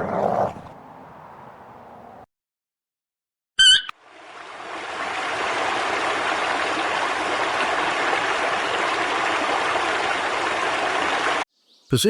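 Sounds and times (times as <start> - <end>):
rush of running water: 4.0 - 11.4.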